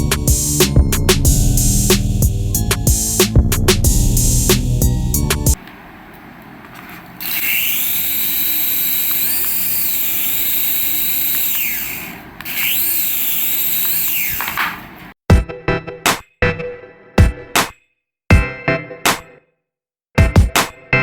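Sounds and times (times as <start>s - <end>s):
small electric motor whining: 7.2s - 15.0s.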